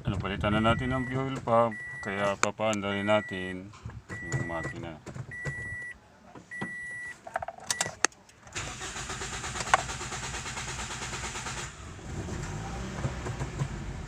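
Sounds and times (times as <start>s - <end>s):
car engine starting and running: 0.0s - 3.4s, 6.6s - 14.0s.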